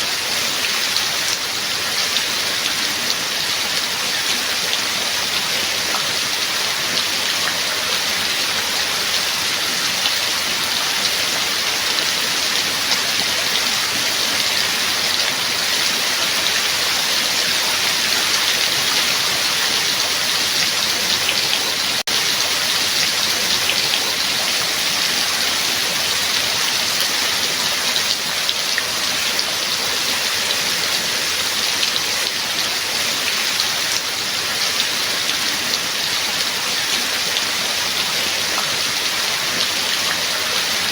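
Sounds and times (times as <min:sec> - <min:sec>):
raindrops ticking: 0:01.3 - 0:29.9.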